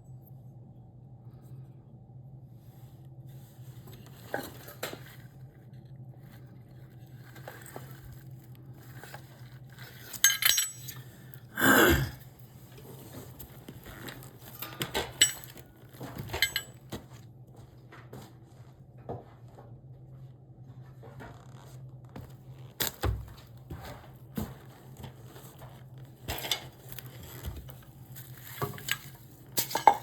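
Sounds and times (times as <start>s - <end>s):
metal tools clinking: 9.0s - 11.5s, 12.7s - 17.0s, 26.3s - 30.0s.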